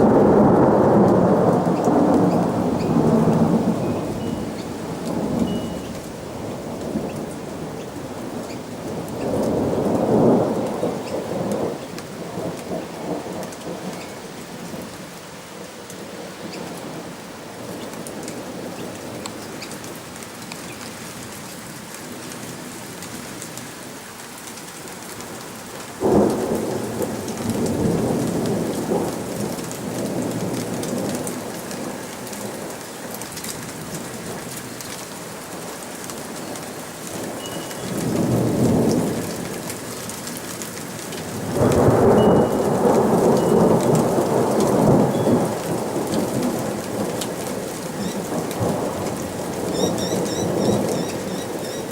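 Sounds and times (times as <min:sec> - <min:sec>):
thunder clap: 0:00.0 - 0:04.0, 0:26.0 - 0:31.9, 0:41.2 - 0:51.9
thunder rumbling: 0:00.0 - 0:14.9, 0:26.0 - 0:32.8, 0:36.3 - 0:51.9
steady rain: 0:00.0 - 0:51.9.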